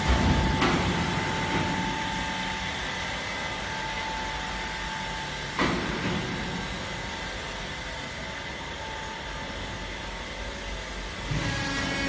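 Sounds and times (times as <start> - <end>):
machine clunk: 0.0 - 2.1, 5.6 - 6.6.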